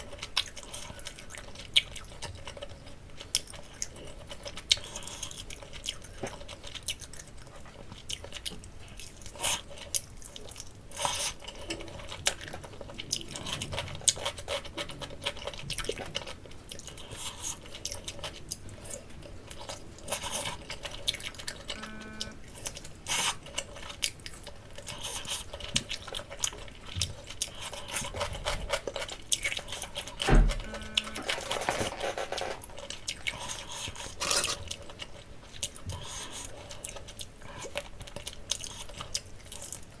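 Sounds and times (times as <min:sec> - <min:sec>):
heavy thump: 0:30.2 - 0:30.8.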